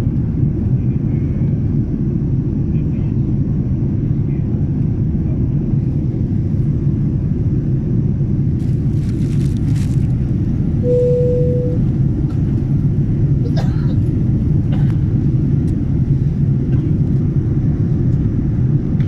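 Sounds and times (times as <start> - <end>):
airliner engines rumbling in cabin: 0.0 - 19.0
short steady tone: 10.8 - 11.8.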